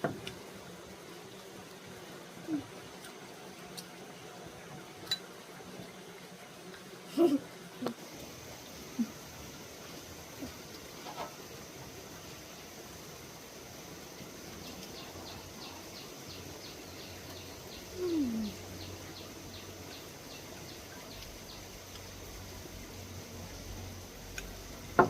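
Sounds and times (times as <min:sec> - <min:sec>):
steady high hiss: 0:00.0 - 0:25.0.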